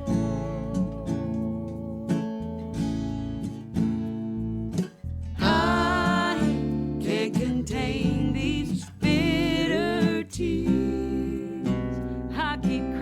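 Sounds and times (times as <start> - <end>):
person singing: 0.0 - 2.7, 5.4 - 13.0
acoustic guitar strumming: 0.0 - 13.0
bass notes: 0.0 - 13.0.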